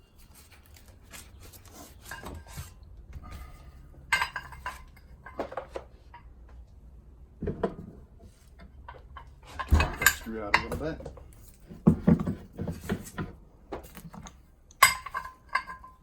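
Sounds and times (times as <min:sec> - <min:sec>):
metal parts clinking and knocking: 0:01.9 - 0:06.4, 0:08.6 - 0:16.0.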